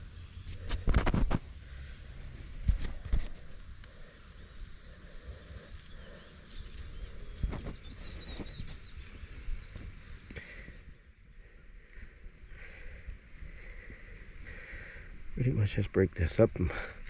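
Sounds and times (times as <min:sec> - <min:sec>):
dull thumps and rustling in soil: 0:00.4 - 0:01.6, 0:02.4 - 0:03.8, 0:07.4 - 0:10.1
birds chirping: 0:01.5 - 0:17.0.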